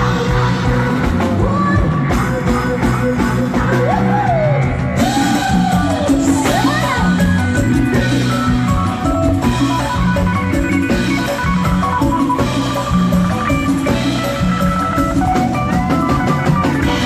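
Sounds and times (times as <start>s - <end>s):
person singing long sliding notes: 0.0s - 8.4s
live band with drums: 0.0s - 17.0s.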